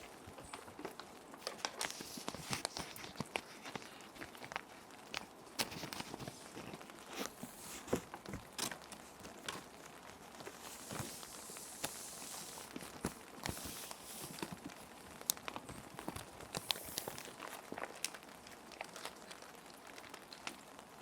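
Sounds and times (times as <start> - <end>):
plastic sheet protectors crinkling: 0.0 - 21.0
soft rain: 0.0 - 21.0
paper sliding into plastic sleeves: 1.4 - 4.2, 5.6 - 8.8, 10.5 - 14.8, 16.1 - 17.5.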